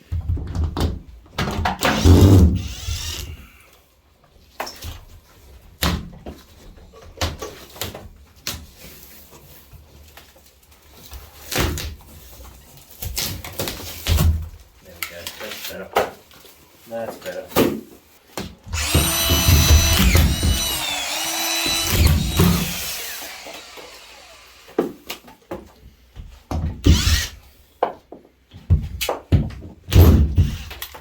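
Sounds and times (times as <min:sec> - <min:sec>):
plasterboard knocks and clatters: 0:00.0 - 0:02.5, 0:28.5 - 0:30.6.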